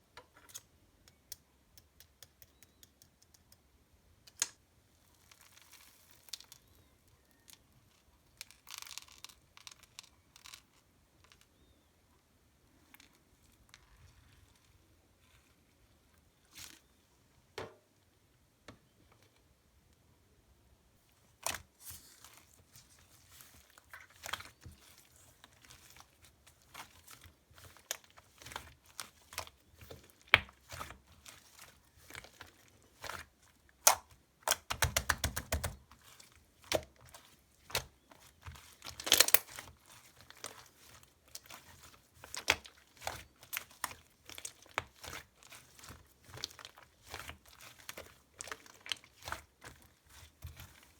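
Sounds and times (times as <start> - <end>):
slime clicking and popping: 33.8 - 35.8.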